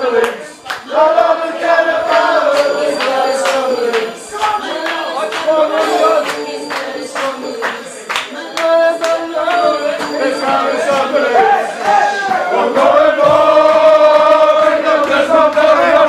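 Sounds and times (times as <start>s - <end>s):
person singing: 0.0s - 16.0s
sharp percussion hits or claps: 2.5s - 12.5s.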